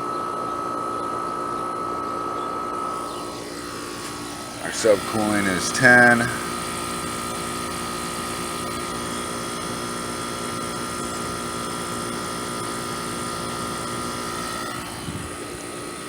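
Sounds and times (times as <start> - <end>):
air conditioner unit humming: 0.0 - 16.0
steady high tone: 4.4 - 6.6.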